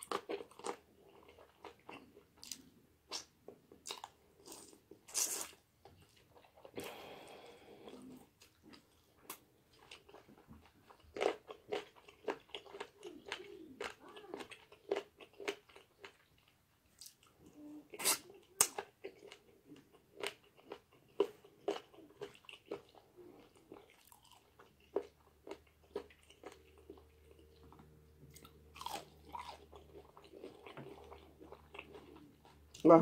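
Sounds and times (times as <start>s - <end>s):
crunch of breading: 28.3s - 32.6s.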